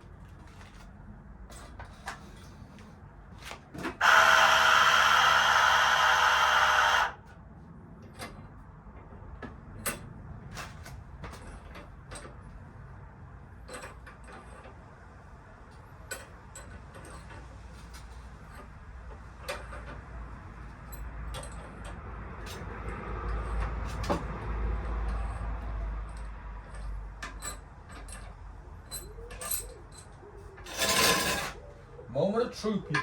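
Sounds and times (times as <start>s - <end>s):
power tool running: 4.0s - 7.2s
tools and parts clicking: 24.8s - 31.6s.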